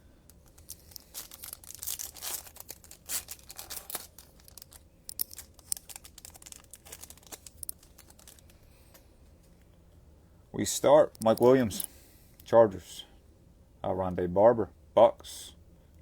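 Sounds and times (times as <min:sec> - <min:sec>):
foil wrapper ripping and crinkling: 0:00.3 - 0:08.6.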